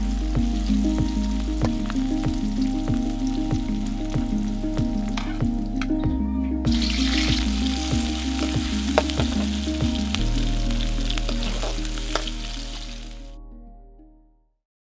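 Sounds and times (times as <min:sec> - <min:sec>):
background music with bass: 0:00.0 - 0:14.6
food sizzling in a wok: 0:06.7 - 0:13.2
utensil scraping a wok: 0:06.8 - 0:13.2.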